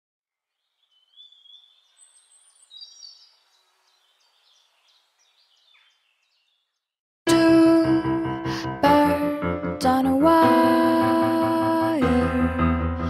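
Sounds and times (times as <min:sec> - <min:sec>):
birds chirping and whistling: 0:00.7 - 0:06.8.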